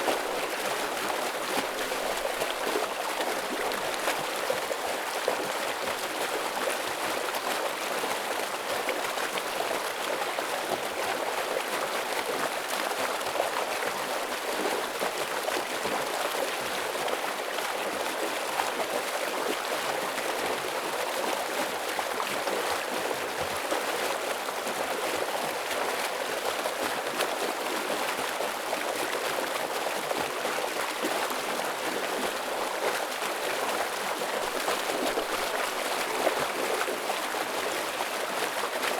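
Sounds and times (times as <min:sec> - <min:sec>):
stream water rushing: 0:28.3 - 0:38.9.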